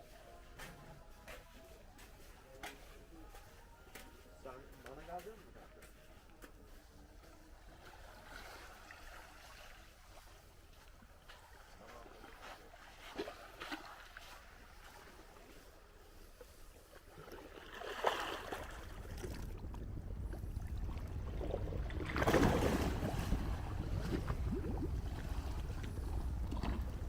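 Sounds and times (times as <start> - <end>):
sea waves washing ashore: 11.4 - 27.0.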